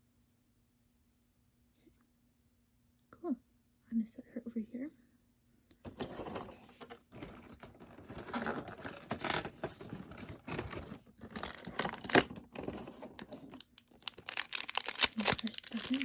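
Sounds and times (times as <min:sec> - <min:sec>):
packaging crinkling and rustling: 0:05.9 - 0:16.0.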